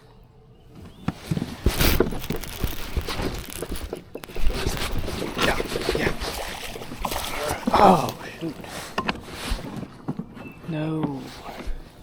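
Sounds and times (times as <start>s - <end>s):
handling clicks and scrapes: 0.9s - 7.6s.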